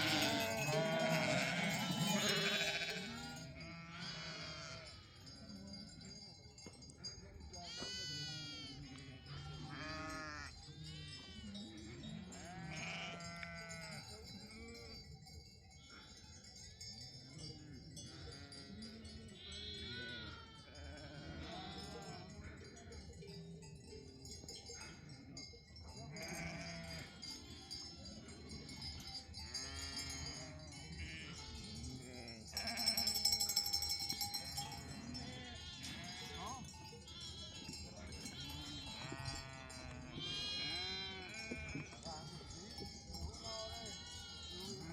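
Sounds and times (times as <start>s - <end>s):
sheep bleating: 0.0s - 5.2s, 7.7s - 11.3s, 12.4s - 14.0s, 19.4s - 22.2s, 26.2s - 27.4s, 29.6s - 31.4s, 32.0s - 37.4s, 38.2s - 42.0s
animal bells ringing: 0.0s - 44.9s.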